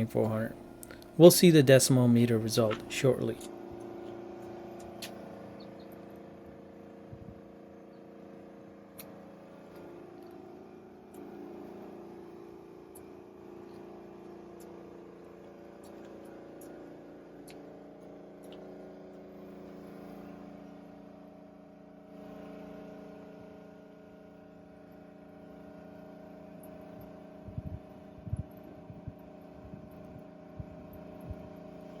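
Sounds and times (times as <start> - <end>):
electric air compressor running: 0.0 - 21.7.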